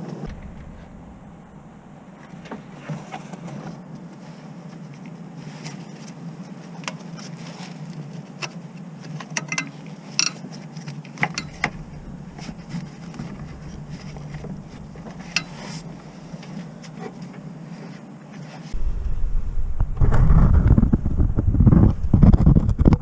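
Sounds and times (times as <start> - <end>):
low hum: 0.0 - 6.7, 11.3 - 17.6, 18.7 - 23.0.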